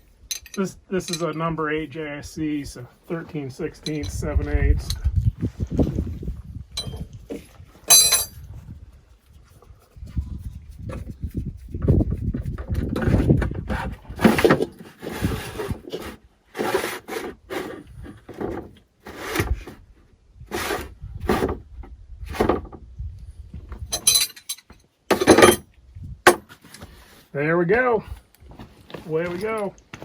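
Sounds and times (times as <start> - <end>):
tools knocking and scraping: 0.0 - 1.4, 3.8 - 4.2, 6.8 - 8.4, 12.6 - 19.8, 23.8 - 25.7, 26.3 - 26.9
gear clattering: 7.9 - 8.4, 23.9 - 25.6.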